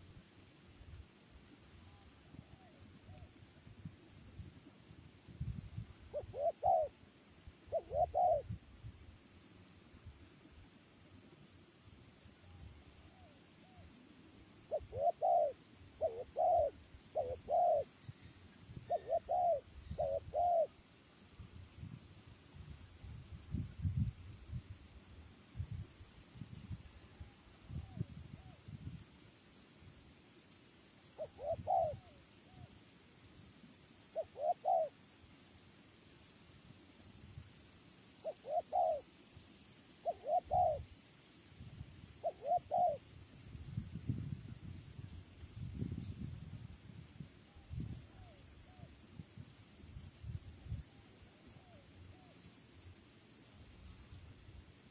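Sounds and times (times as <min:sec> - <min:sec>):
dove cooing: 0:06.1 - 0:07.0, 0:07.6 - 0:08.6, 0:14.6 - 0:18.0, 0:18.8 - 0:20.7, 0:31.1 - 0:32.7, 0:34.1 - 0:35.0, 0:38.2 - 0:39.1, 0:40.0 - 0:40.9, 0:42.2 - 0:43.1.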